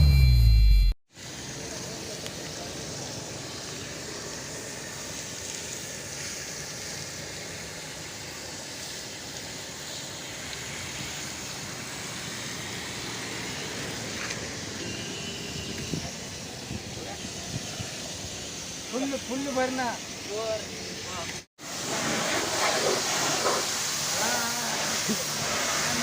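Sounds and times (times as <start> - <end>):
water jet spraying a car: 1.1 - 26.0.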